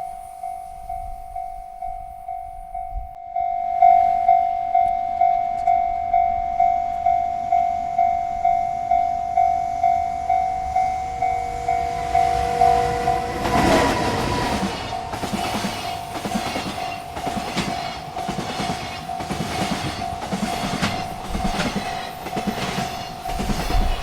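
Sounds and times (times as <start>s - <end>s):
railroad crossing bell ringing: 0.0s - 24.0s
freight train rumble: 3.8s - 24.0s
train horn: 8.8s - 16.0s.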